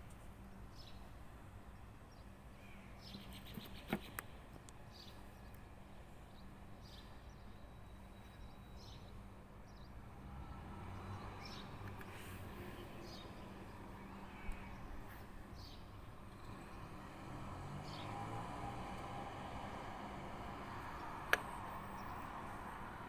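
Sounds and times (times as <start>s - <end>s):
small birds chirping: 1.8s - 5.6s, 11.0s - 23.0s.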